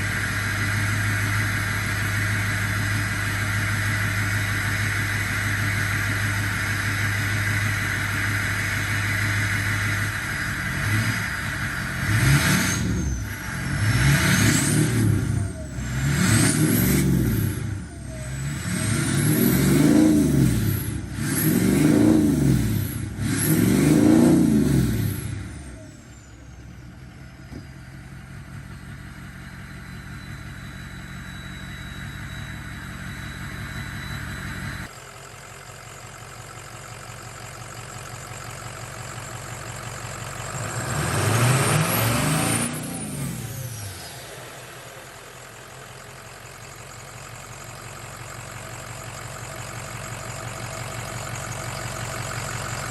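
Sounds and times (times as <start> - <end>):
diesel truck engine revving: 0.0 - 26.3, 37.6 - 52.9
turbo whistle: 29.6 - 34.9.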